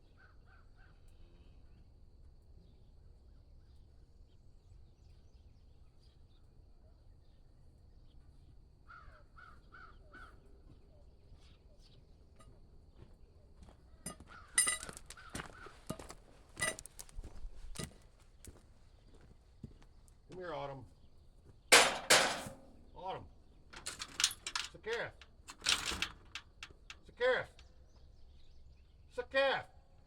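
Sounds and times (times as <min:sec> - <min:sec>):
crow cawing: 0:08.9 - 0:10.4, 0:14.2 - 0:15.9
loud sharp knocks and clatters: 0:21.7 - 0:22.7.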